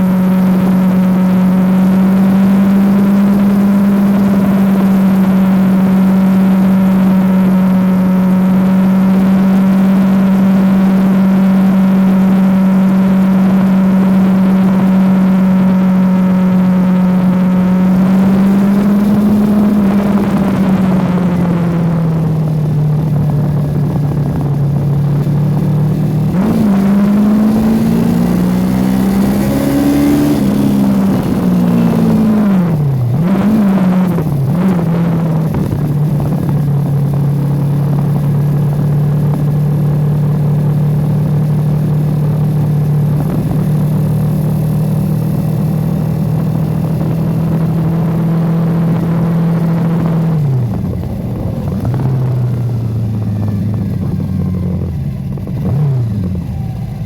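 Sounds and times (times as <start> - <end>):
motorcycle engine: 0.0 - 57.0
wind noise: 0.0 - 57.0.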